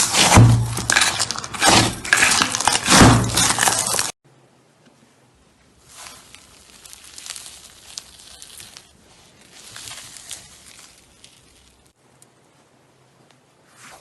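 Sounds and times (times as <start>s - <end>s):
slime crackling and popping: 0.0s - 4.2s, 5.8s - 12.0s.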